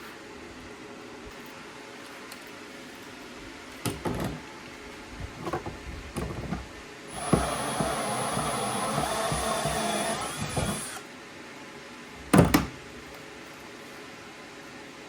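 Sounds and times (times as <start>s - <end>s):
knocks and clattering of parts: 5.4s - 11.0s
small power tool whining: 7.1s - 11.1s.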